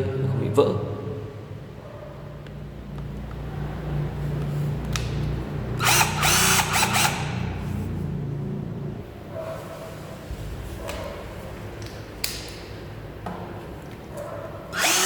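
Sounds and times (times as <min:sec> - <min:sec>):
cordless drill motor running: 0:05.8 - 0:07.6, 0:14.7 - 0:15.0
drill ratcheting clatter: 0:05.8 - 0:07.6, 0:14.7 - 0:15.0.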